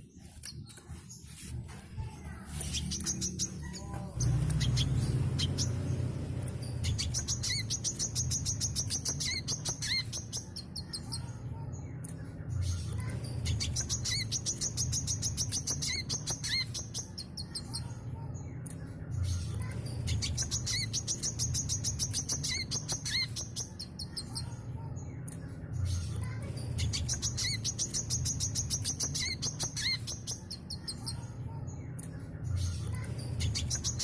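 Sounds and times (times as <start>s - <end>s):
bird chirping and trilling: 2.3s - 34.0s
low rumble: 3.2s - 8.8s.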